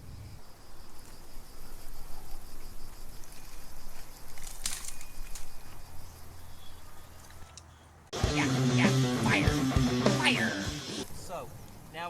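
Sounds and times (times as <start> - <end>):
insect chirping: 0.0 - 7.3, 8.3 - 12.0
small fire crackling: 11.0 - 12.0.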